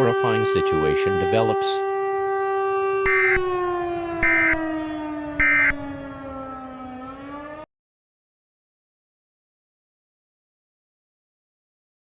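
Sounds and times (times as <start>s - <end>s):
siren tone: 0.0s - 7.7s
data burst tones: 5.4s - 5.8s.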